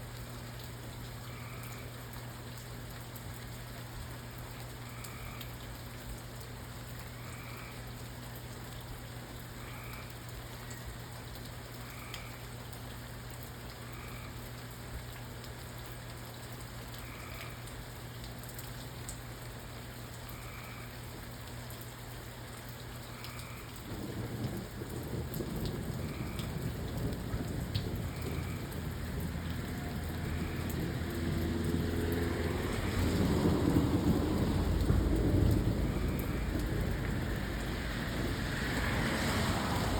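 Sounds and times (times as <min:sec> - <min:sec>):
rain falling: 0:00.0 - 0:39.9
thunder rumbling: 0:23.8 - 0:39.9.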